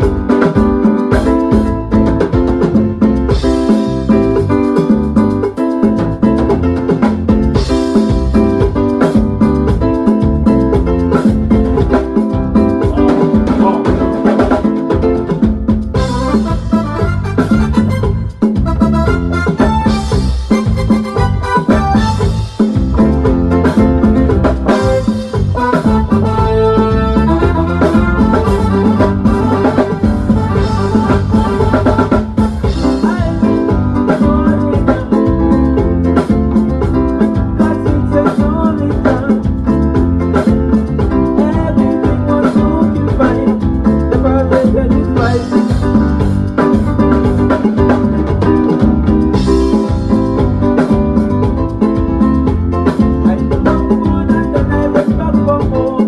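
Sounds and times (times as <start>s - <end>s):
drum kit beat: 0.0s - 56.0s
guitar: 0.0s - 56.0s.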